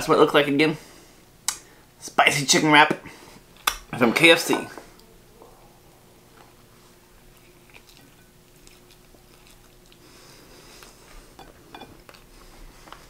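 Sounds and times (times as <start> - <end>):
person chewing food: 6.3 - 13.0.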